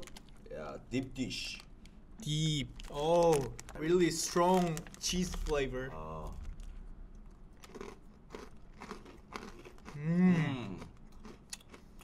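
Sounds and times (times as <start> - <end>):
crunchy snack being chewed: 6.3 - 12.0
person humming: 9.9 - 10.8.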